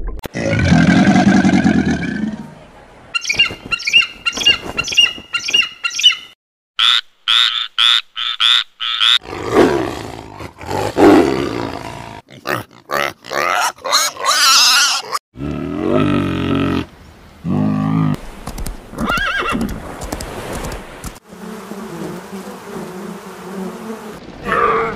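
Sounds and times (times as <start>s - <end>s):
pig grunting and squealing: 0.3s - 2.4s, 9.1s - 18.2s.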